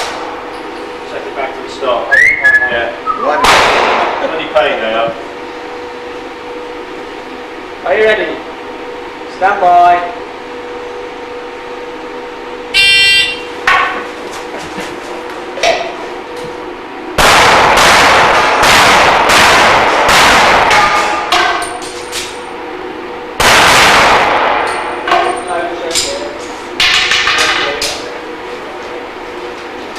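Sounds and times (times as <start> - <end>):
pistol shots: 3.4 - 4.2, 17.2 - 21.3, 23.4 - 24.8
shot timer beep: 12.8 - 13.5.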